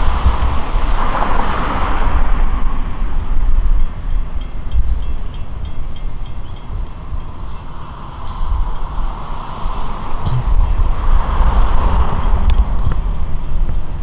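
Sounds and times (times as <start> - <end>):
train rumbling: 8.6 - 14.0.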